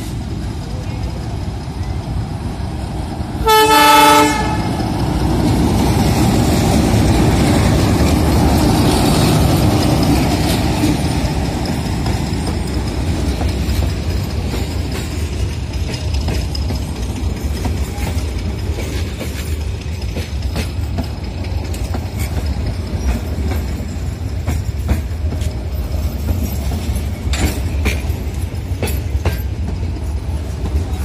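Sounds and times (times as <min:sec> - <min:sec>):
train rumbling past on rails: 0:00.0 - 0:31.0
locomotive horn blast: 0:03.4 - 0:04.8.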